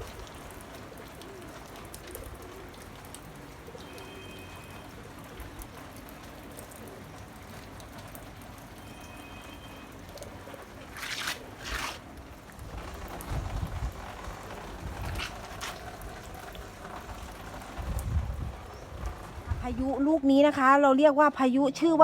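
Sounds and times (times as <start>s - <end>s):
rain falling: 0.0s - 20.6s
dove cooing: 0.9s - 6.0s, 6.6s - 7.5s
brief rustles: 10.9s - 12.0s, 15.0s - 15.9s.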